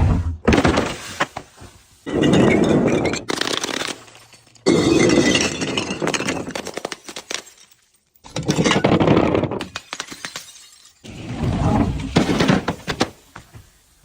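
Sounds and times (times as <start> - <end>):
glass crushing and breaking: 0.5 - 13.7
shards clinking: 9.7 - 11.2.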